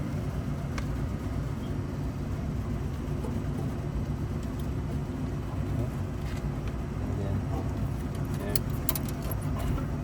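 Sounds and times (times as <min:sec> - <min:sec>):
low machinery drone: 0:00.0 - 0:10.0.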